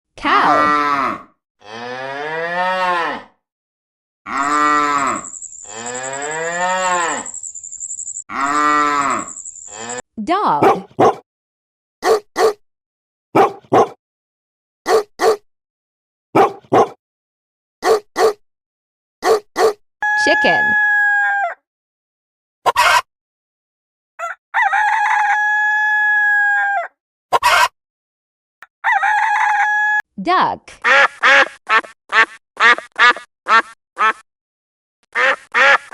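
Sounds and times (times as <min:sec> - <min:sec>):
cow mooing: 0:00.4 - 0:03.4, 0:04.3 - 0:07.3, 0:08.3 - 0:10.0
rooster crowing: 0:04.4 - 0:07.3, 0:20.0 - 0:21.6, 0:24.2 - 0:27.0, 0:28.8 - 0:30.0
thin high-pitched tone: 0:05.0 - 0:08.2.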